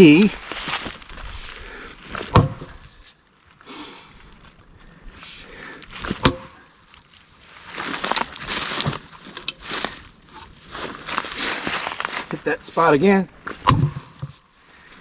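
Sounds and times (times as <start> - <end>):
wood cracking and rustling: 0.0 - 15.0
axe chopping wood: 2.1 - 2.8, 6.1 - 6.5, 13.6 - 14.2.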